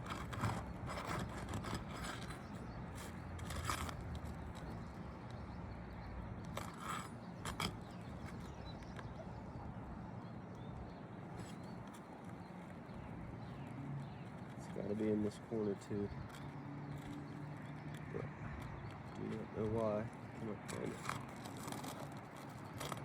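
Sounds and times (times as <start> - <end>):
hand tool scraping shingles: 0.0 - 4.7, 6.6 - 8.4, 20.6 - 23.0.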